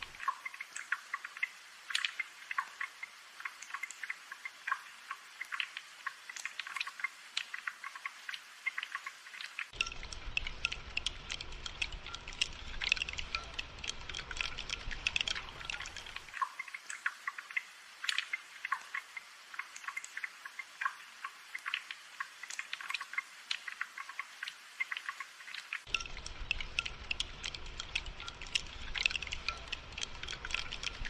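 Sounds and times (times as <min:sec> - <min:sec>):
rain dripping: 0:00.0 - 0:31.0.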